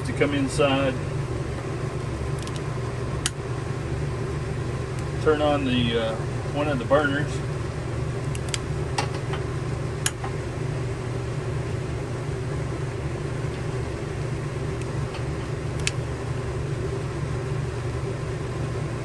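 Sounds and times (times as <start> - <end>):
low machine hum: 0.0 - 19.0
sharp clicks: 2.4 - 3.4.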